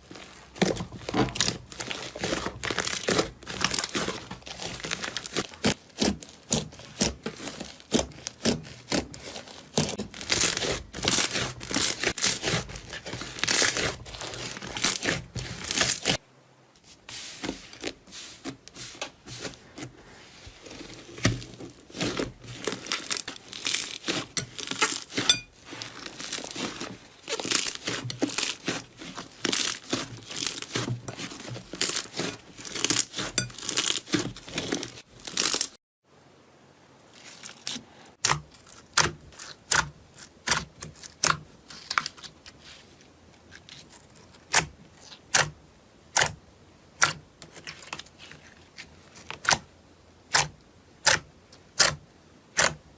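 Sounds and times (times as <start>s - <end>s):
slime crackling and popping: 0.0s - 16.2s, 21.3s - 35.8s.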